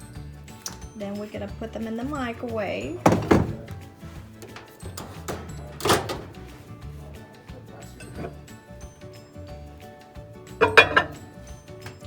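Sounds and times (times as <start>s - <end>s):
glass clinking against glass: 10.5s - 12.0s.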